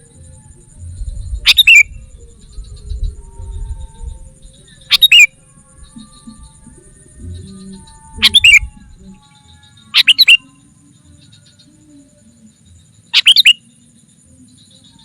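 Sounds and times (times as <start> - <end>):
faint bird chirps: 0.0 - 15.0
bird chattering calls: 1.4 - 1.9, 4.9 - 5.3, 8.2 - 8.7, 9.9 - 10.4, 13.1 - 13.6.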